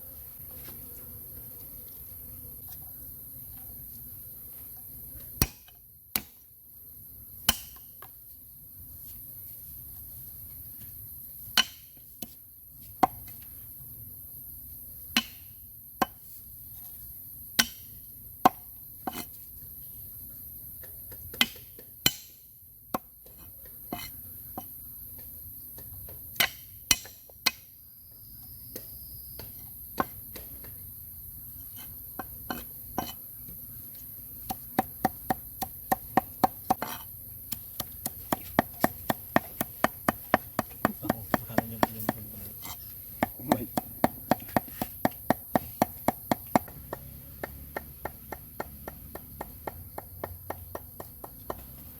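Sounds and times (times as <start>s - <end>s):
knife chopping on wooden board: 37.7s - 42.3s, 43.2s - 51.7s.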